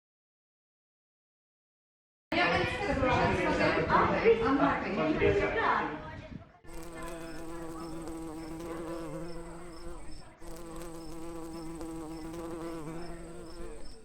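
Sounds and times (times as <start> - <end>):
faint high ticking: 6.7 - 14.0
flying insect buzzing: 6.7 - 14.0.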